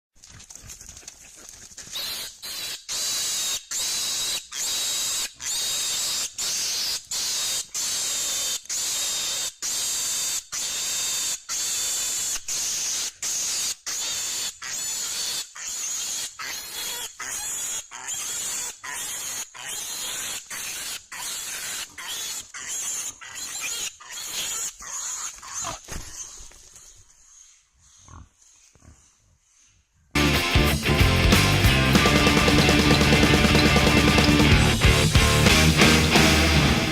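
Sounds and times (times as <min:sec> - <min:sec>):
hog squealing in distress: 0:02.0 - 0:26.6.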